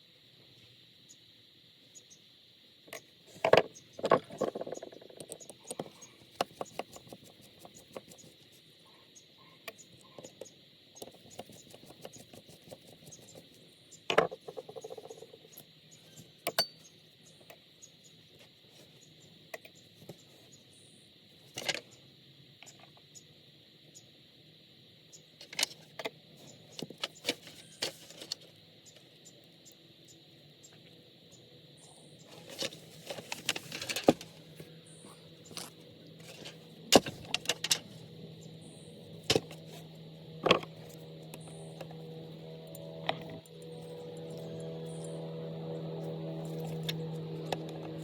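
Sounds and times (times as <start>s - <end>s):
small metal parts clicking: 36.2s - 38.0s.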